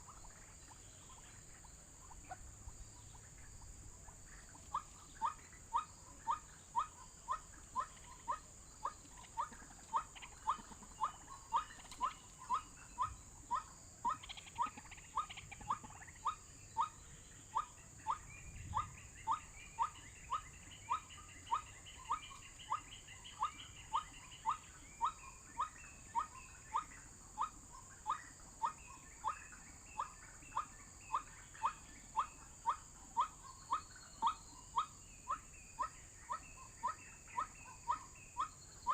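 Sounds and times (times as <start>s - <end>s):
faint chattering bird calls: 0.0s - 38.9s
waterhen call: 4.3s - 17.0s.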